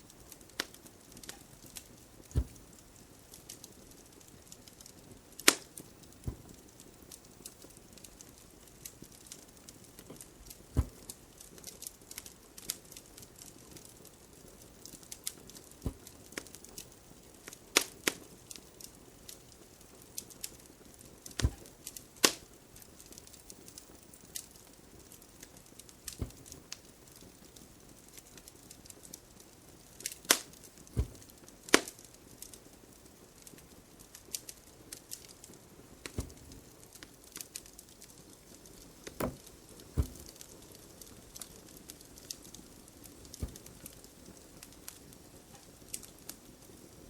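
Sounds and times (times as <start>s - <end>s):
faint steady hiss: 0.0s - 47.0s
fireplace crackling: 0.0s - 47.0s.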